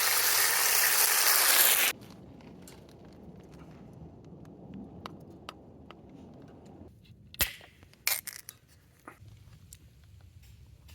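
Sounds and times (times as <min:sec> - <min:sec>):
campfire crackling: 0:00.0 - 0:06.8
sharp crack: 0:07.4 - 0:08.5.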